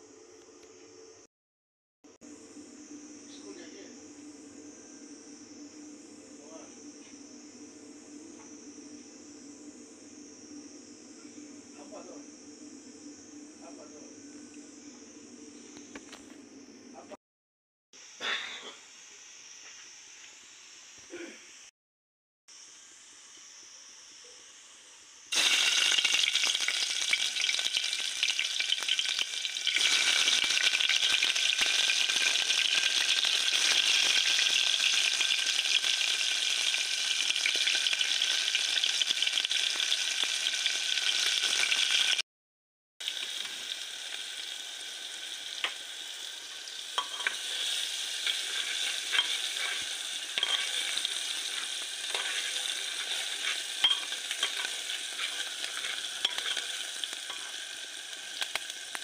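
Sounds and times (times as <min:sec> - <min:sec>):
vegetables sizzling in hot oil: 0:22.5 - 0:42.2, 0:43.0 - 0:59.0.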